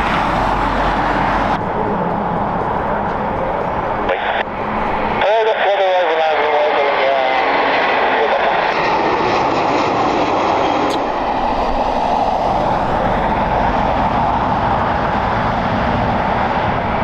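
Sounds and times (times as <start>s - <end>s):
jet engines running: 0.0s - 17.0s
faint whine: 1.6s - 7.4s, 10.9s - 17.0s.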